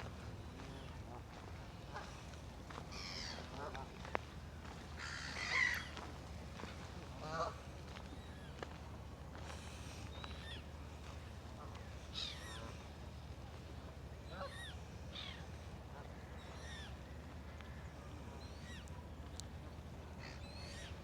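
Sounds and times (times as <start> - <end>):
low background hum: 0.0 - 21.0
geese honking: 7.0 - 7.7.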